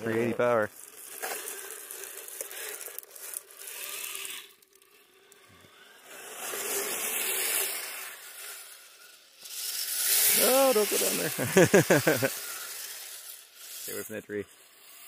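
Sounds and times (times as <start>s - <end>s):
electric motor whining: 0.0s - 15.0s
tyres churning through slushy snow: 9.7s - 14.2s.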